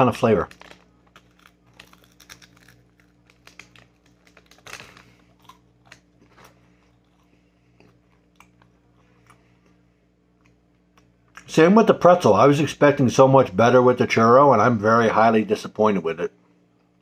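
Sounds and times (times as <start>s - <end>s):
faint steady hum: 0.0s - 17.0s
person chewing: 0.5s - 11.5s.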